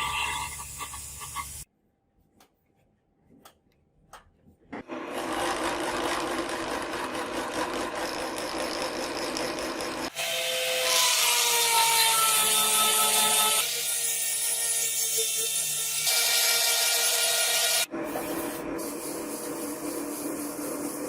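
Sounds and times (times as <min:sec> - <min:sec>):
power tool whine: 0:04.9 - 0:11.1.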